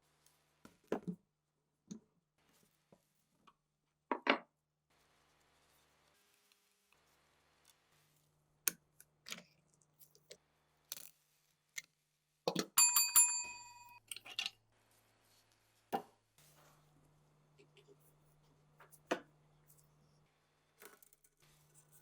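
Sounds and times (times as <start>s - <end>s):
metal piece ringing bell-like: 12.8s - 14.0s.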